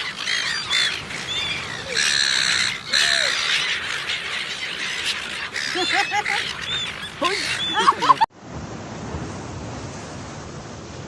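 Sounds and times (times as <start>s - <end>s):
bird squawking harshly: 0.0s - 8.1s
birds chirping: 0.0s - 8.3s.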